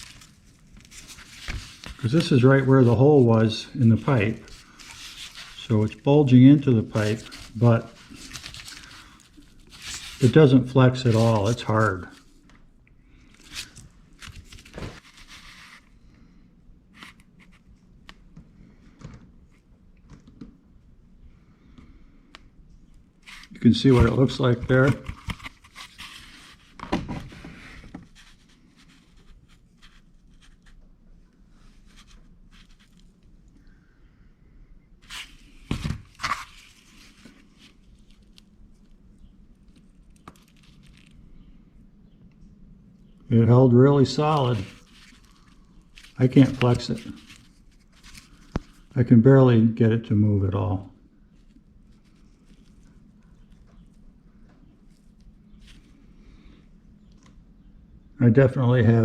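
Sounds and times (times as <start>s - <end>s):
scratchy rustle and scraping: 0.0s - 12.3s, 13.3s - 15.9s, 23.2s - 30.8s, 31.6s - 33.2s, 35.0s - 41.2s, 44.0s - 48.9s, 51.3s - 54.0s.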